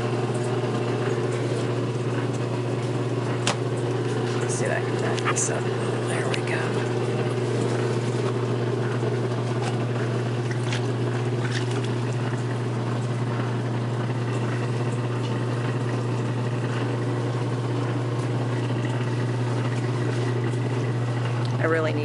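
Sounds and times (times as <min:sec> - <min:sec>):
washer motor hum: 0:00.0 - 0:22.0
water splashing and trickling: 0:09.0 - 0:13.1.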